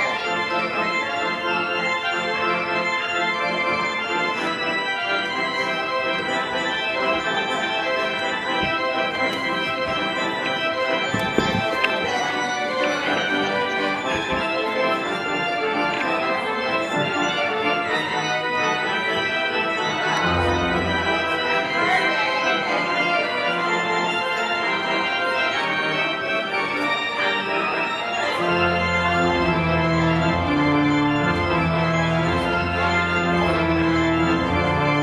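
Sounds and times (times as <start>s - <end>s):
church organ chords: 0.0s - 35.0s
deep organ bass notes: 28.2s - 35.0s.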